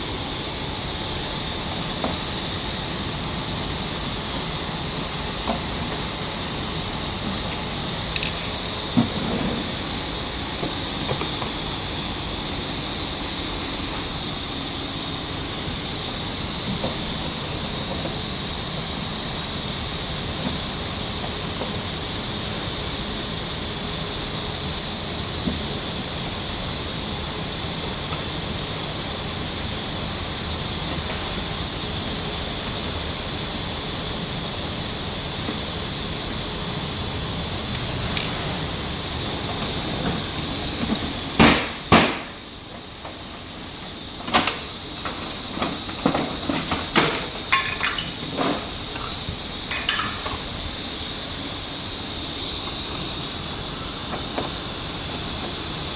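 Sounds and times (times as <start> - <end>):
steady hiss: 0.0 - 55.9
parts clicking and knocking: 44.2 - 50.5.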